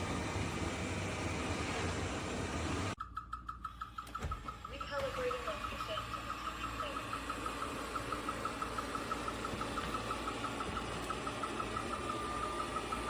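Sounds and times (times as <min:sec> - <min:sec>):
robot vacuum motor whir: 0:04.5 - 0:13.0.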